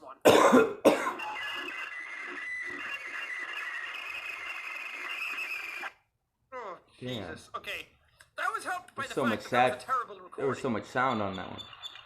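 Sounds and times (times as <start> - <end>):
high-pitched scraping screech: 1.2 - 6.0.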